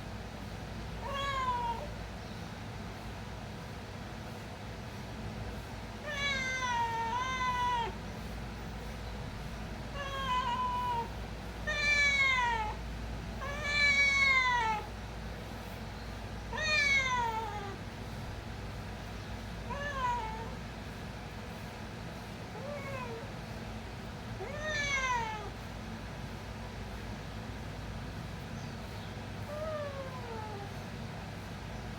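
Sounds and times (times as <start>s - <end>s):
cat meowing: 1.0s - 1.9s, 6.0s - 8.0s, 9.9s - 12.8s, 13.4s - 14.9s, 16.5s - 17.8s, 19.7s - 20.6s, 22.6s - 23.3s, 24.4s - 25.6s, 29.5s - 30.8s.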